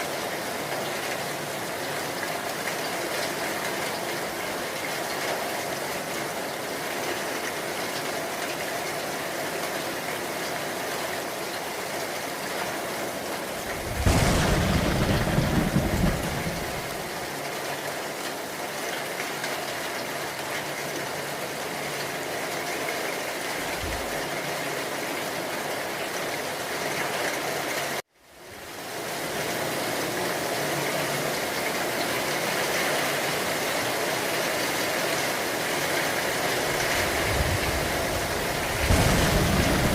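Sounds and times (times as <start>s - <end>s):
heavy rain: 0.0s - 39.9s
thunder rumbling: 13.5s - 17.4s, 23.7s - 24.2s, 36.6s - 39.9s.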